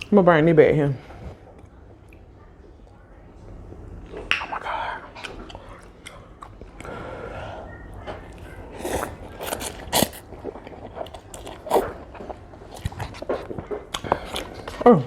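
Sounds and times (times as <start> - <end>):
person chewing noodles: 4.5 - 15.0.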